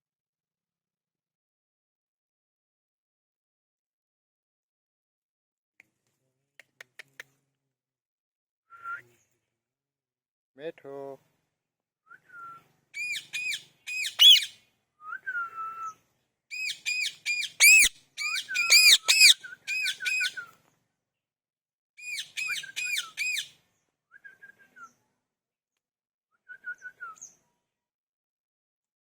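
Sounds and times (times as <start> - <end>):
parrot soft whistles: 12.1 - 16.0, 16.6 - 20.6, 26.5 - 27.4
parrot shrill calls: 13.0 - 14.5, 16.5 - 20.4, 22.0 - 23.5.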